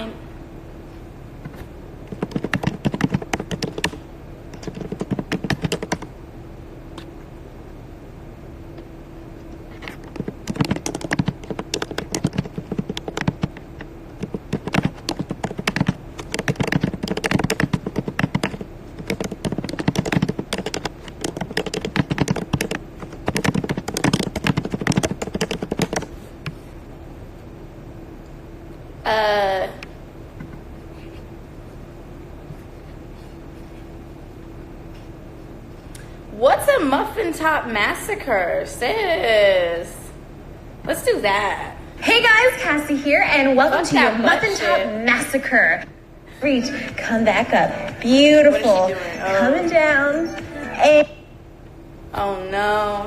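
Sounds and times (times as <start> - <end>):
faint hum: 0.0 - 53.0
keyboard key clicks: 10.1 - 13.6.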